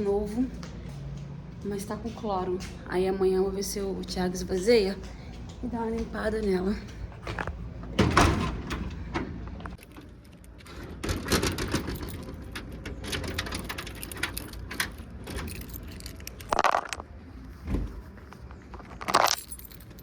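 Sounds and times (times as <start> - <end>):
car keys jangling: 11.6 - 17.0, 18.7 - 20.0.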